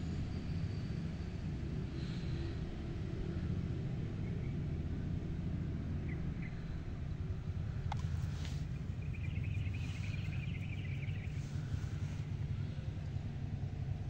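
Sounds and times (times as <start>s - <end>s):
low rumble: 0.0s - 14.0s
birds chirping: 5.6s - 14.0s
chattering bird calls: 8.0s - 12.8s.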